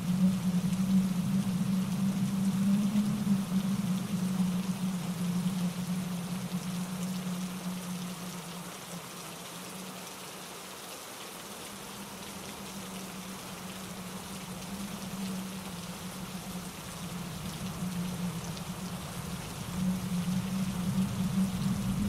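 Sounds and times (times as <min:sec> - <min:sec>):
low rumble of water: 0:00.0 - 0:22.0
rain falling on leaves: 0:00.0 - 0:22.0.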